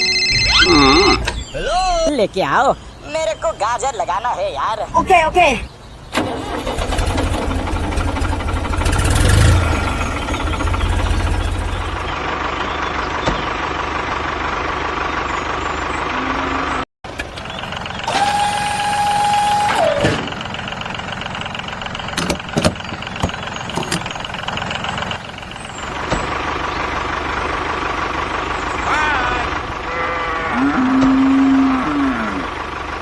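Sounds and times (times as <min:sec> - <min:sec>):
horn-like tone bending downward: 0:00.0 - 0:01.3, 0:29.9 - 0:32.4
engine hum: 0:00.0 - 0:33.0
tractor engine running: 0:00.0 - 0:33.0.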